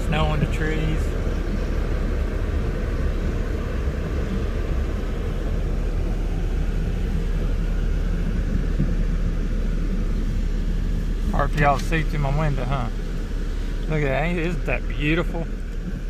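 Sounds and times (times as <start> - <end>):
pickup truck engine rumble: 0.0 - 16.0.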